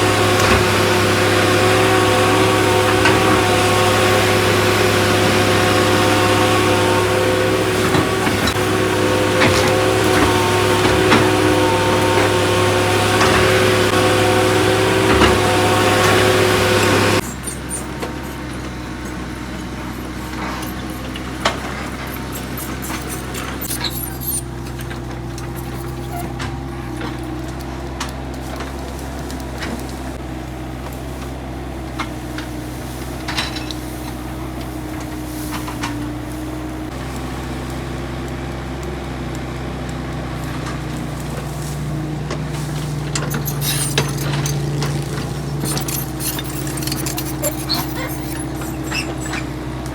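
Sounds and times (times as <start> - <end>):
excavator diesel engine running: 0.0 - 49.9
metal clinks and knocks: 43.1 - 49.4.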